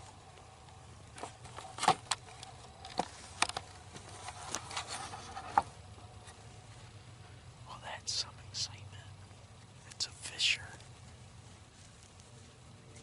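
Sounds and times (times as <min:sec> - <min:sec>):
animal footsteps in dry leaves: 0:10.7 - 0:13.0.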